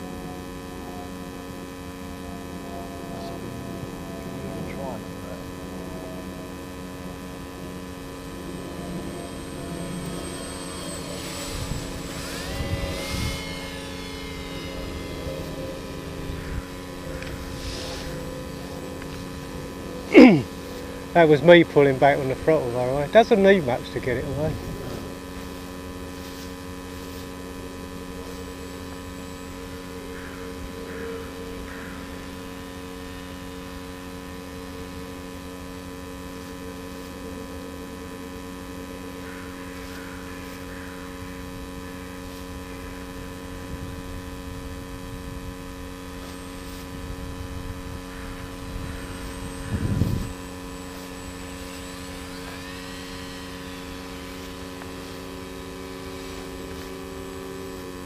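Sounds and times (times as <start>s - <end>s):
model airplane motor drone: 0.0s - 58.0s.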